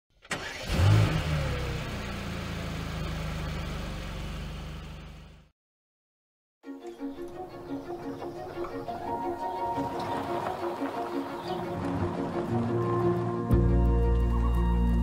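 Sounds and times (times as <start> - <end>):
car engine revving: 0.3 - 5.5.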